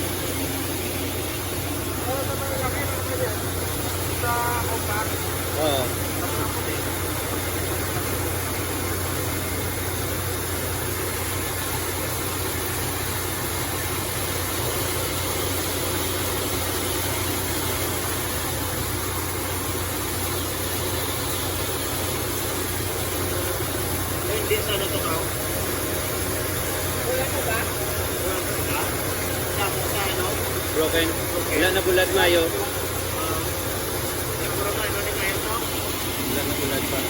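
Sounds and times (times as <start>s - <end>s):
rice mill humming: 0.0s - 37.0s.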